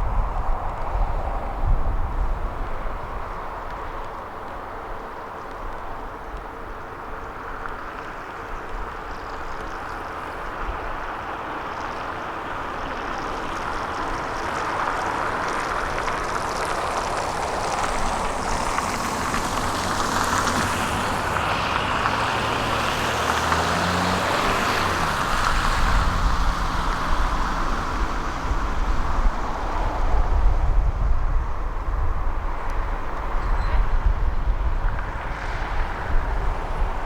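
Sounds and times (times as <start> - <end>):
truck engine working: 14.1 - 29.8.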